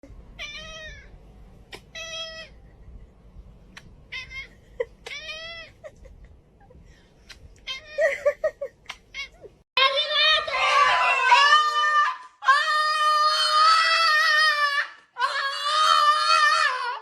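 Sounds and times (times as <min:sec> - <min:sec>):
cat meowing: 0:00.4 - 0:01.2, 0:01.8 - 0:02.6, 0:05.1 - 0:05.8.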